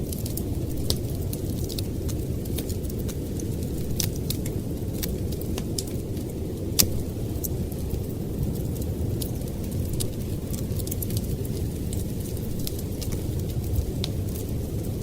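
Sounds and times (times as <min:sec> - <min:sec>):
storm wind rumble: 0:00.0 - 0:15.0
wood fire crackling and popping: 0:00.0 - 0:15.0.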